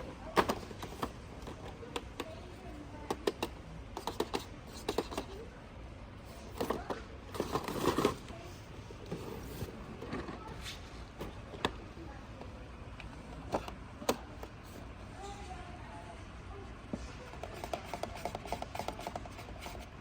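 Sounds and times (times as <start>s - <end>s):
toy cars clicking and tapping: 3.0s - 5.4s, 17.3s - 19.9s
rustling and scraping: 6.3s - 11.6s.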